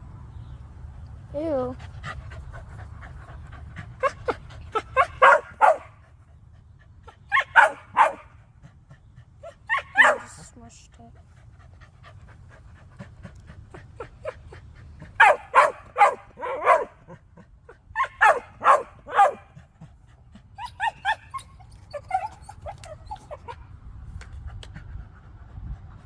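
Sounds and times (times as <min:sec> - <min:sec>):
dog barking: 0:04.8 - 0:06.0, 0:07.3 - 0:08.3, 0:09.7 - 0:10.4, 0:15.2 - 0:17.1, 0:18.0 - 0:19.6
dog yipping softly: 0:09.7 - 0:10.4, 0:18.0 - 0:19.4, 0:20.6 - 0:23.6.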